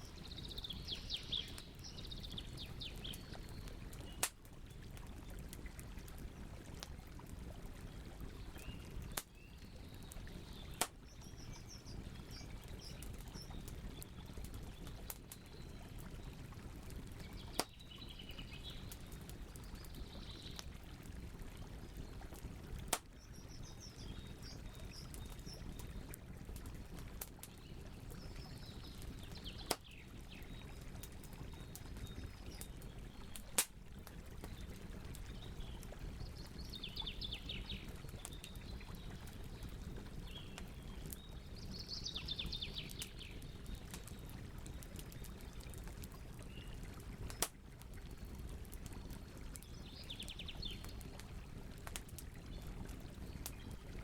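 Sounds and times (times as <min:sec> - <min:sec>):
campfire crackling: 0:00.0 - 0:54.0
fire popping: 0:01.4 - 0:07.3, 0:16.5 - 0:30.0, 0:31.0 - 0:37.0, 0:42.7 - 0:49.7.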